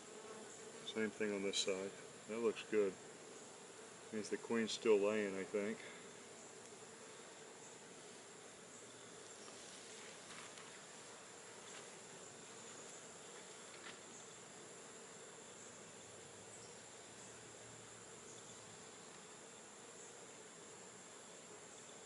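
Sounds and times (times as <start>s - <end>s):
honeybees buzzing: 0.0s - 22.0s
faint ticks: 6.5s - 6.8s, 18.5s - 19.3s.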